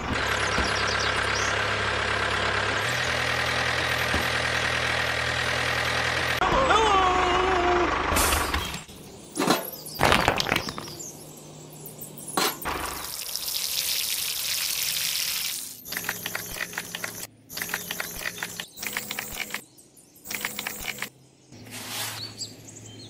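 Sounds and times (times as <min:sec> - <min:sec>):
water poured over clay bricks: 0:12.8 - 0:15.8.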